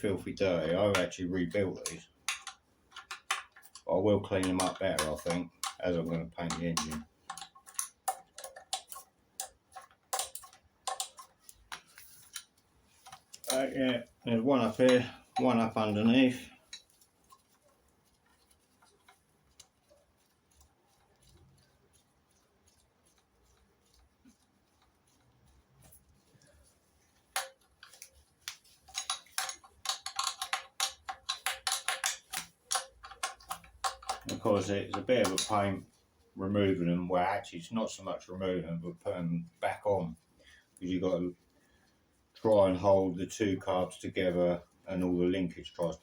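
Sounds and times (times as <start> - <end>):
spanner clicking on nuts: 0.9 - 14.0, 27.3 - 35.8.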